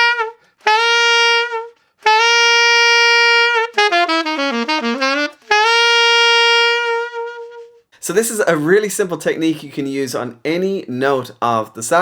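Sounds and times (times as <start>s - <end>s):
saxophone playing grace notes: 0.0s - 7.9s.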